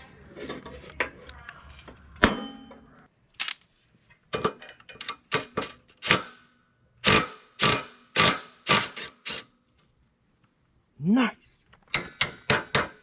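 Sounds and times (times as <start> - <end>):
ringing metal clang: 2.2 - 3.0.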